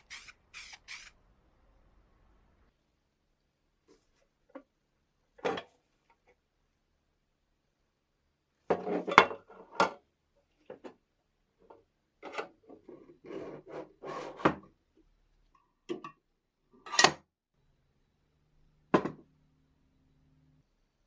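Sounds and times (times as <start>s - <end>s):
faint low hum: 17.6s - 21.0s.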